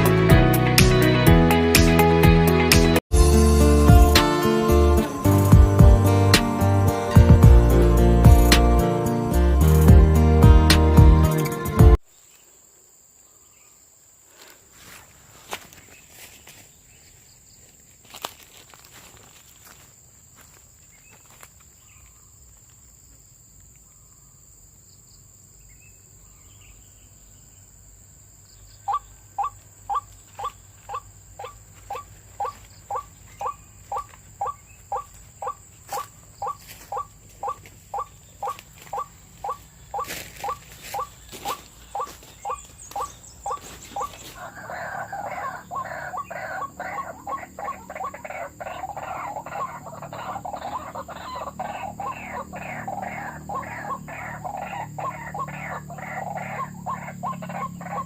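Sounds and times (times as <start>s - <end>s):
bird calling falling notes: 28.8s - 58.0s.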